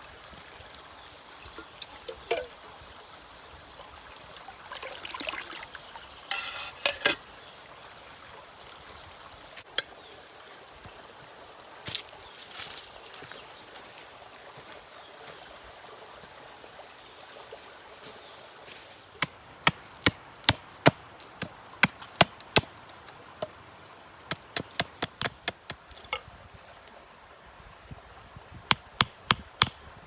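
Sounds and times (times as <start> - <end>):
wood being chopped: 19.2 - 22.7, 24.3 - 26.2, 28.7 - 29.8.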